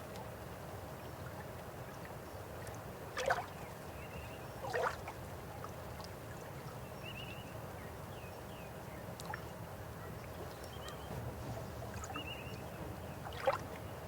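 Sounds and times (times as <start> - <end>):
water splashes: 1.2 - 3.6, 4.6 - 6.4, 10.3 - 14.0
river water flowing: 9.1 - 14.0.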